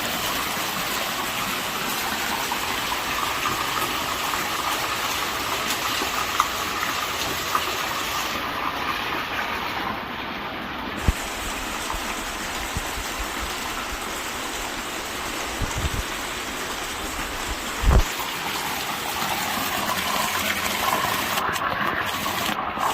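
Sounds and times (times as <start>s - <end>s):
rainwater rushing: 0.0s - 22.9s.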